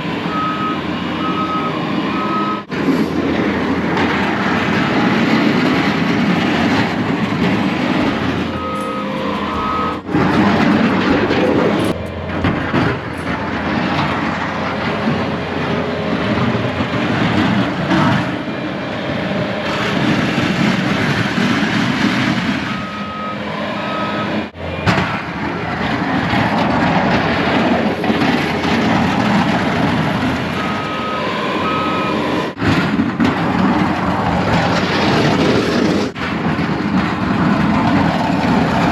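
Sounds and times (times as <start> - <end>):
plow truck running: 0.0 - 38.9
reversing alarm beeps: 0.2 - 2.7, 8.4 - 12.4, 22.6 - 24.5, 30.5 - 32.5.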